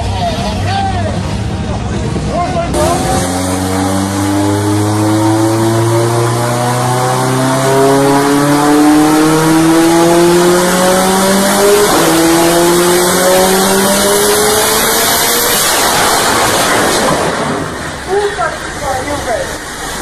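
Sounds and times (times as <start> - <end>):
car engine revving under load: 2.7 - 18.1.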